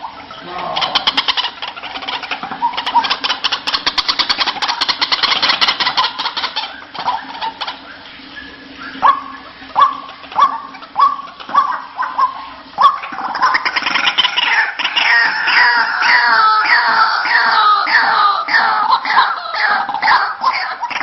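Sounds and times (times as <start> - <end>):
loud rising and falling bird calls: 0.0 - 21.0
bird rattling chatter: 0.8 - 7.5.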